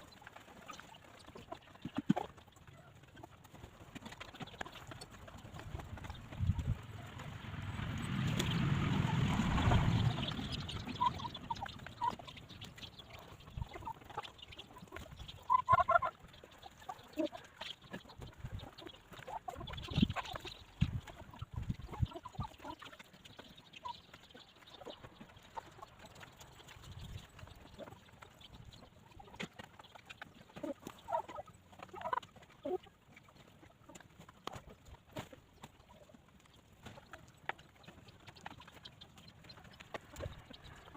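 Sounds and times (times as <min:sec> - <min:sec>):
hens clucking: 0:00.0 - 0:40.9
loud rush of noise: 0:07.3 - 0:11.0
small ticks: 0:10.2 - 0:40.9.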